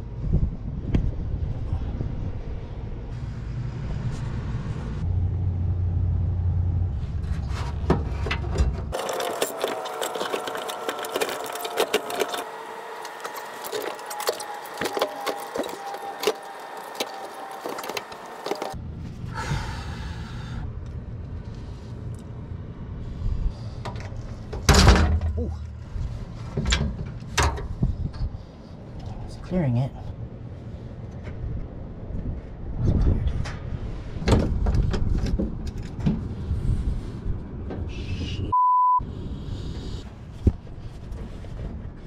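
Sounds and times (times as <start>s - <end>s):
low rumble: 0.0s - 9.0s, 17.6s - 42.0s.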